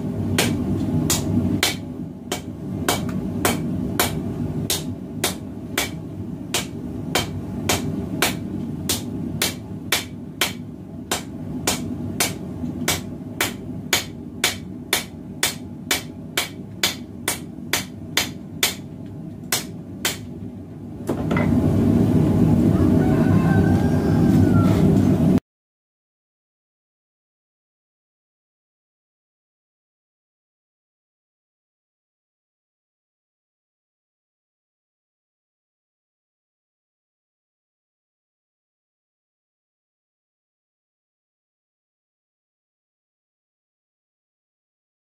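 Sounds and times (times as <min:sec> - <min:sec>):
forge burner roaring: 0:00.0 - 0:25.4
hammer on steel against anvil: 0:00.4 - 0:18.8.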